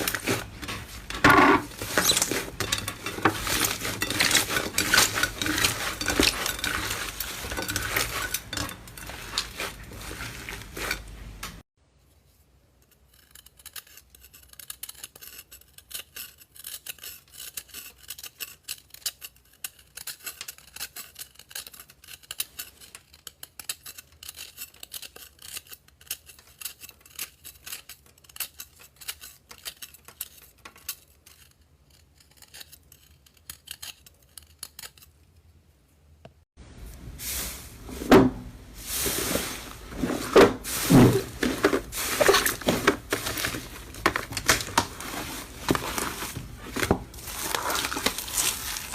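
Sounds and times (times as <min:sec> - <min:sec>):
slime crackling and popping: 0:47.0 - 0:48.9.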